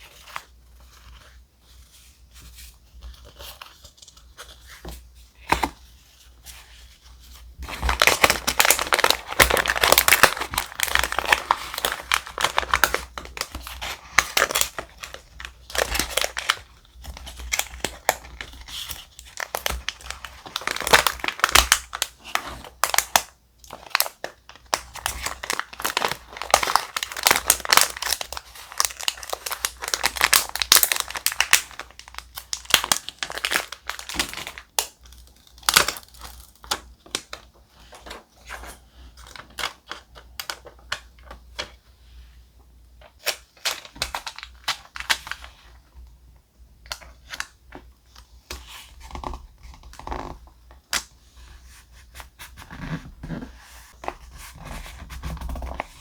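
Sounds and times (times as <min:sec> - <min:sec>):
paper crinkling and rustling: 0:00.0 - 0:41.7.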